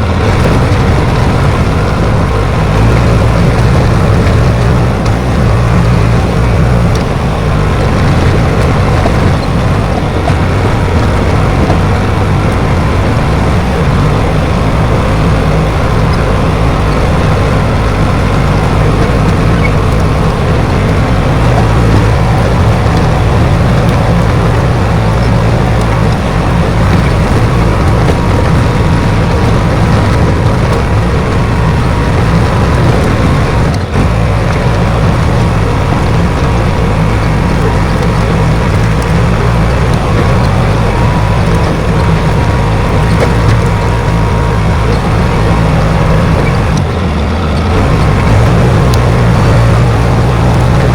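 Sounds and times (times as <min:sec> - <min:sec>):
diesel engine rumbling: 0:00.0 - 0:50.9
faint steady whine: 0:00.0 - 0:50.9.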